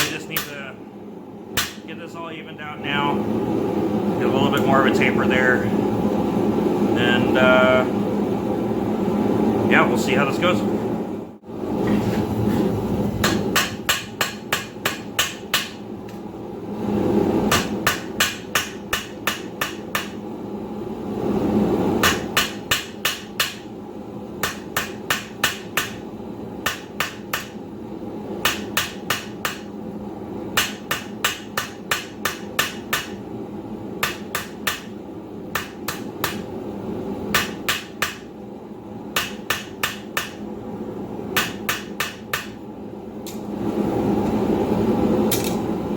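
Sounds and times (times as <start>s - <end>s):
hammer striking steel on anvil: 0.0s - 0.6s, 1.6s - 1.9s, 13.2s - 15.8s, 17.5s - 20.2s, 22.0s - 23.7s, 24.4s - 26.0s, 26.6s - 27.6s, 28.4s - 29.7s, 30.6s - 33.2s, 34.0s - 34.9s, 35.5s - 36.5s, 37.3s - 38.3s, 39.2s - 40.4s, 41.4s - 42.6s.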